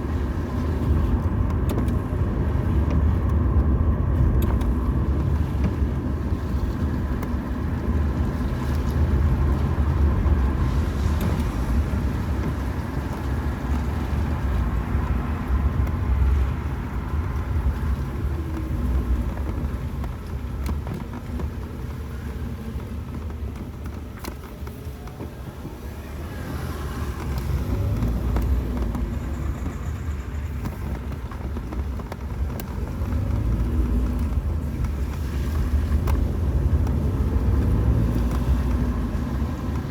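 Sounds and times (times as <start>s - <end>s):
car on wet road: 0.0s - 39.9s.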